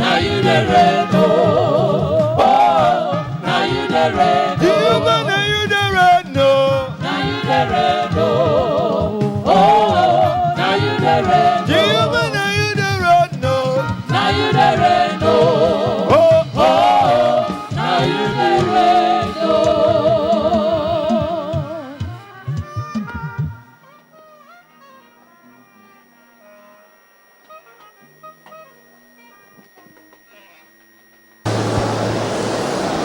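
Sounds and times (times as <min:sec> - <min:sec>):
congregation singing gospel: 0:00.0 - 0:23.6
steady beat: 0:00.0 - 0:23.8.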